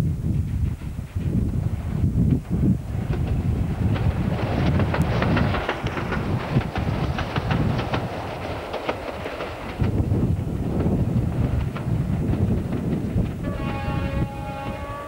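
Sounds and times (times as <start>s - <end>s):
wheels clattering over rail joints: 2.2s - 13.4s.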